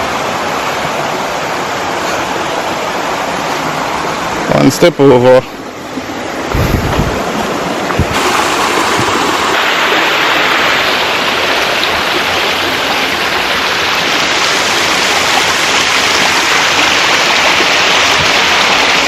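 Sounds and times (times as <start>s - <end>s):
river water rushing over rocks: 0.0s - 19.0s
low knock: 6.5s - 8.2s.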